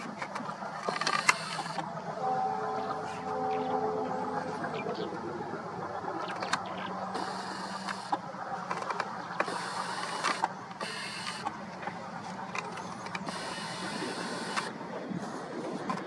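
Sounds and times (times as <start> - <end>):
sharp clicks and rattles: 0.0 - 2.0
train rumbling: 0.0 - 10.8.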